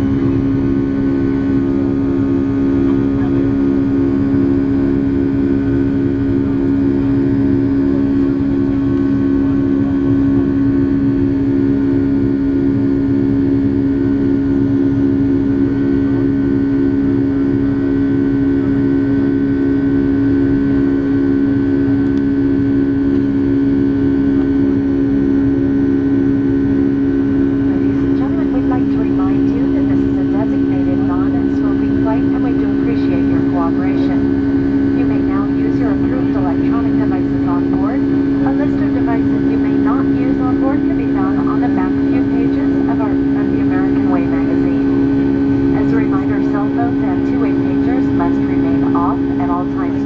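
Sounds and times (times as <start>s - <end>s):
pulsing jet engine drone: 0.0s - 50.0s.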